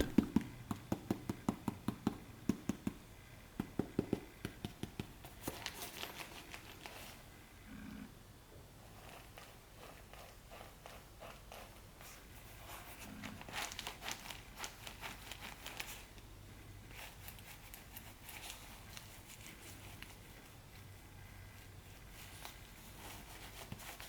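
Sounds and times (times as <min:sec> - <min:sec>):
paper stuffing crinkling: 0:05.2 - 0:07.2, 0:12.6 - 0:16.1.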